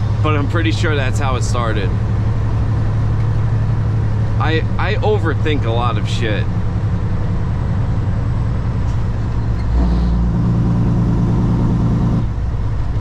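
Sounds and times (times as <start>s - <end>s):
diesel truck engine droning: 0.0s - 13.0s.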